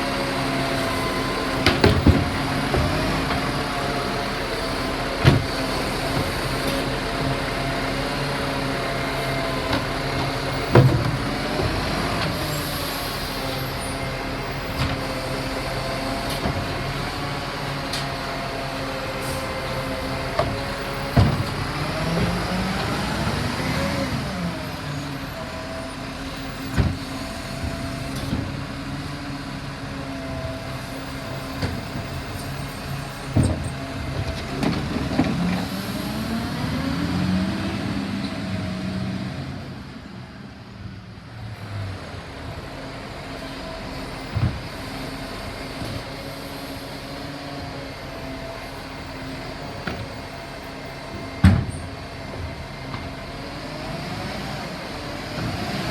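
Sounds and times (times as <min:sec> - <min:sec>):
garbage truck engine revving: 0:00.0 - 0:40.0, 0:41.5 - 0:55.9.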